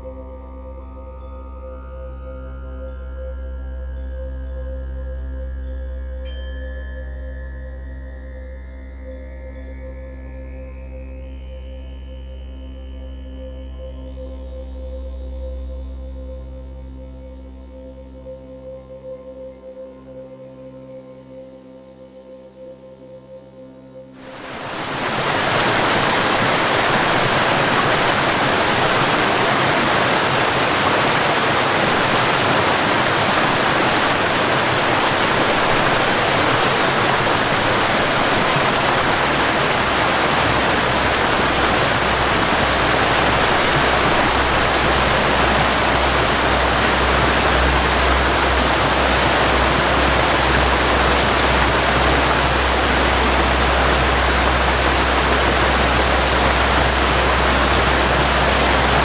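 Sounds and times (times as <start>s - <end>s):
rushing water: 24.2s - 59.0s.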